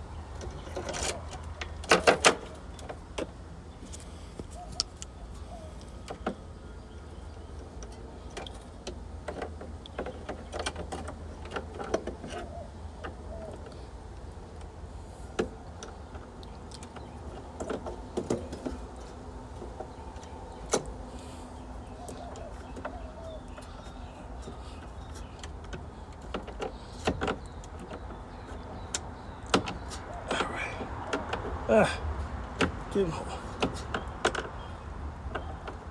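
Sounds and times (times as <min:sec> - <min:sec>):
clicks and knocks from handling wiring: 0:00.3 - 0:06.4, 0:22.0 - 0:35.9.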